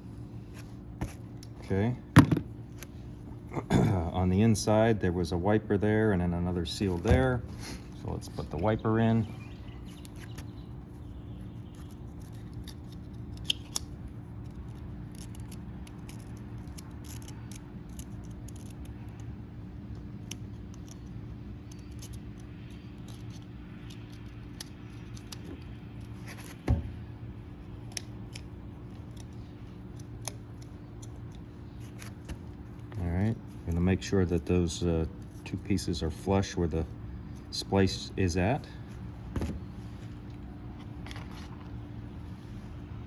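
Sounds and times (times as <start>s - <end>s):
steady low hum: 0.0s - 43.0s
small clicks of tools: 11.8s - 19.3s, 19.9s - 26.1s.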